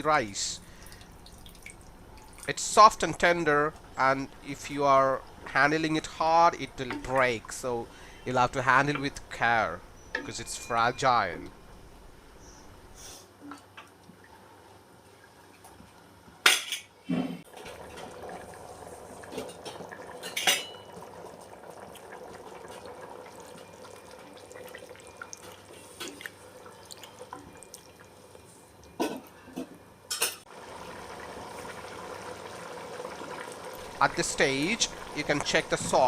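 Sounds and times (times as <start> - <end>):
water bubbling in pot: 17.5 - 28.3, 30.5 - 36.0.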